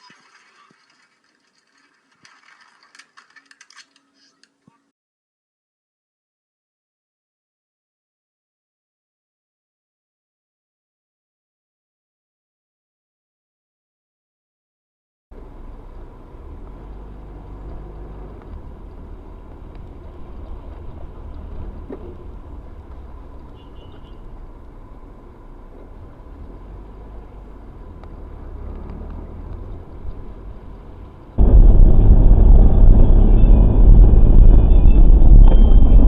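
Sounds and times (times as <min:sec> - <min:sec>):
vehicle road and engine rumble: 0:15.3 - 0:36.0
loud rumble: 0:31.4 - 0:36.0.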